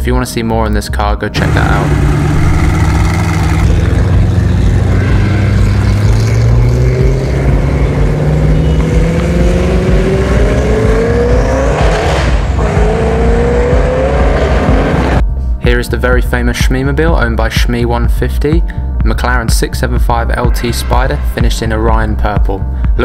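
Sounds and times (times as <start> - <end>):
sports car engine accelerating: 1.4 - 15.2.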